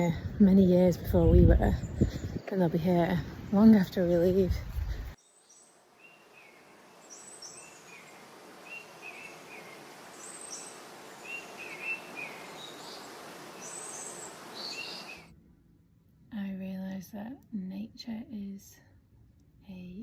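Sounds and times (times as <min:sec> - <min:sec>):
songbirds chirping: 0:00.0 - 0:15.3
steady background hiss: 0:02.6 - 0:15.3.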